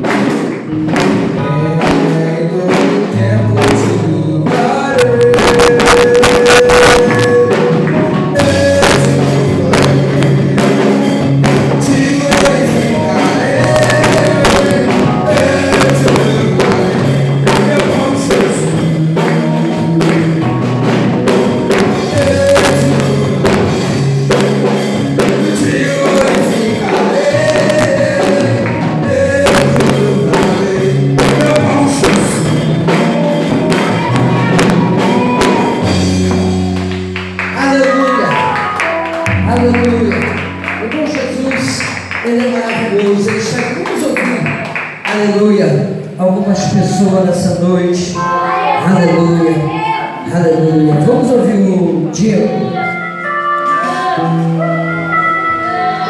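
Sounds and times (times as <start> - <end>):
gospel worship music: 0.0 - 56.0.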